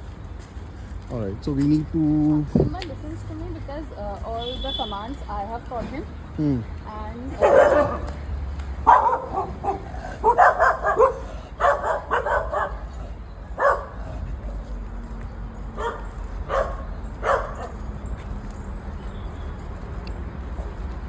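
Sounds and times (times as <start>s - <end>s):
dog barking: 7.4s - 8.2s, 8.8s - 14.1s, 15.7s - 17.8s.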